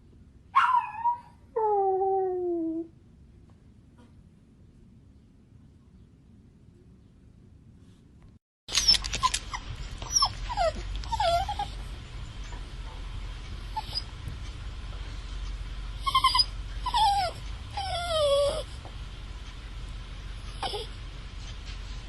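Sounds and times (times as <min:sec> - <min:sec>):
dog whining and whimpering: 0:00.6 - 0:02.9, 0:08.7 - 0:11.9, 0:13.7 - 0:14.2, 0:16.0 - 0:18.8, 0:20.5 - 0:21.0
low hum: 0:08.7 - 0:22.0.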